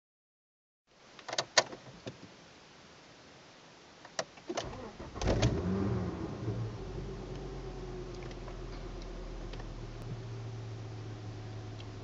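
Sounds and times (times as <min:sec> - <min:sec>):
car engine firing: 0:04.7 - 0:12.0.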